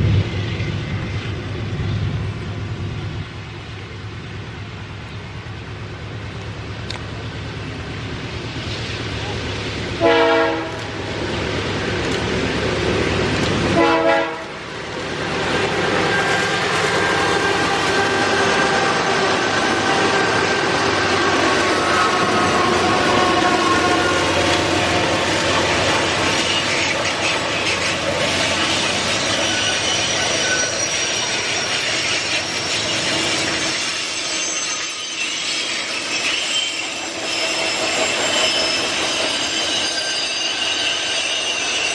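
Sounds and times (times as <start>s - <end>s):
diesel locomotive engines working: 0.0s - 41.9s
wheels clacking on rails: 0.0s - 41.9s
locomotive horn blast: 10.0s - 11.0s, 13.7s - 14.6s, 18.8s - 24.7s.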